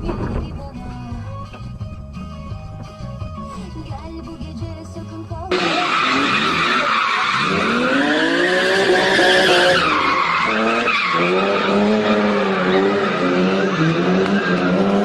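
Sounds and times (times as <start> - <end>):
car engine revving: 5.5 - 15.0
tyres squealing: 5.5 - 15.0.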